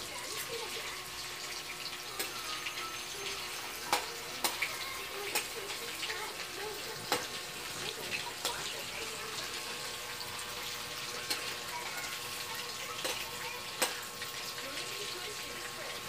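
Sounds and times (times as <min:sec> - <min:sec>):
shrimp sizzling in hot oil: 0:00.0 - 0:16.0.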